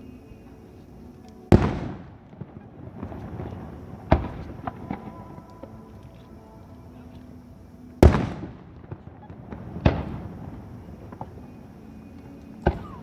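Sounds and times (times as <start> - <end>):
sharp firework crack: 1.5 - 5.6, 8.0 - 12.0
fireworks shells booming: 1.5 - 6.1, 8.0 - 13.0.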